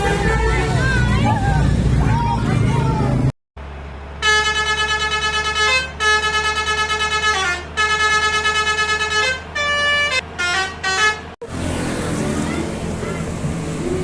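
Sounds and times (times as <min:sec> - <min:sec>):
bus musical horn melody: 0:00.0 - 0:01.2, 0:04.1 - 0:11.4.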